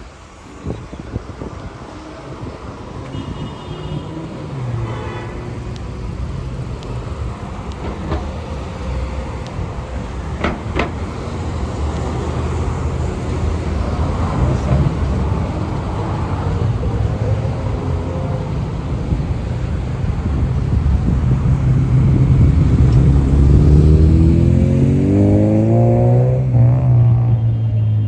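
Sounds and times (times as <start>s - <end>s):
road traffic: 0.0s - 28.0s
large vehicle engine running low: 5.5s - 28.0s.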